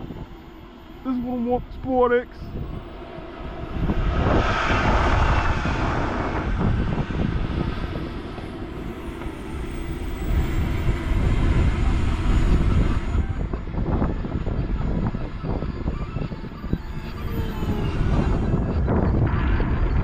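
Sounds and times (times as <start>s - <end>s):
wind rumble on microphone: 0.0s - 20.0s
model plane motor whine: 7.9s - 19.2s.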